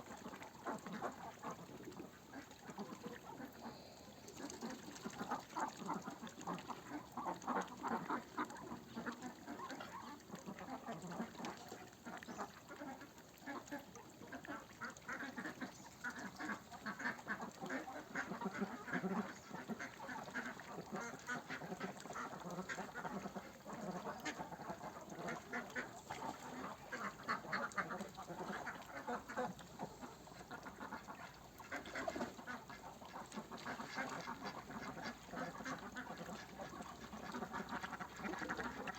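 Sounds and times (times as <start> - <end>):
ducks quacking: 0.2 - 38.9.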